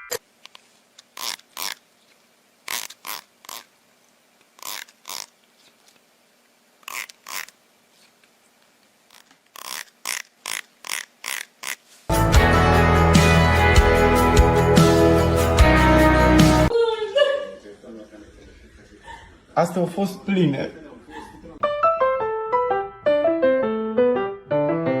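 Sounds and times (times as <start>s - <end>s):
music: 12.1s - 16.7s, 21.6s - 25.0s.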